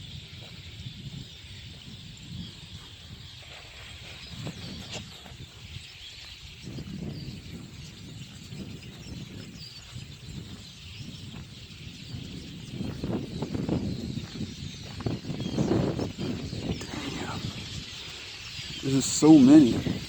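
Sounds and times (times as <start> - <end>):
flock of birds chattering: 0.0 - 20.0.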